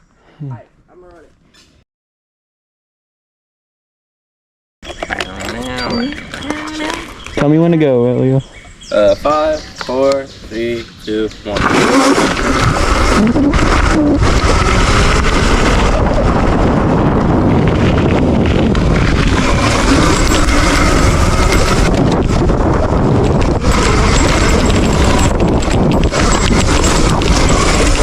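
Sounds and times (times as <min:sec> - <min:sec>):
wind noise on microphone: 0:11.4 - 0:28.0
dirt bike engine running: 0:11.6 - 0:28.0.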